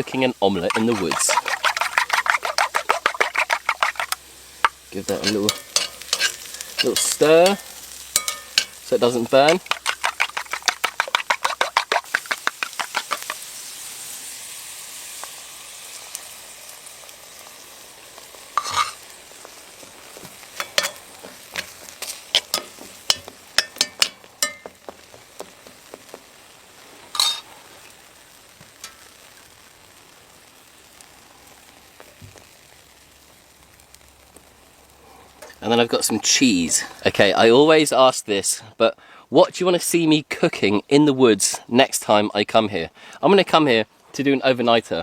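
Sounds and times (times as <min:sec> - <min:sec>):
spork scraping a pan: 0:00.0 - 0:13.4, 0:18.6 - 0:19.1, 0:19.8 - 0:25.9, 0:27.2 - 0:27.5
eggs sizzling in a pan: 0:00.0 - 0:39.2.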